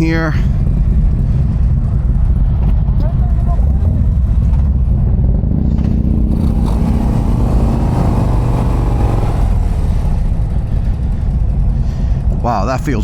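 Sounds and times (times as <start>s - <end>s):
motorcycle engine running: 0.2s - 12.5s.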